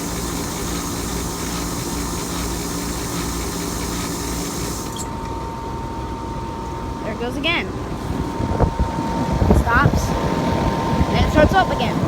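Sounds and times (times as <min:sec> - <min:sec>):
loud continuous hissing: 0:00.0 - 0:05.1
air conditioner humming: 0:00.0 - 0:12.0.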